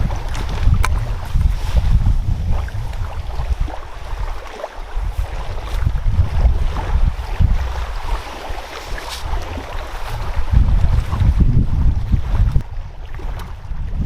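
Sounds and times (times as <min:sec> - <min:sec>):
wind blowing across microphone: 0:00.0 - 0:14.0.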